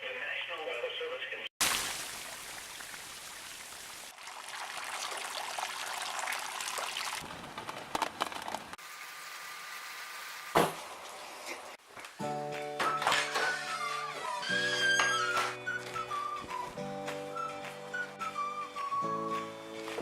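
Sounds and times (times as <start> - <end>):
rain and running water: 1.6 - 8.0.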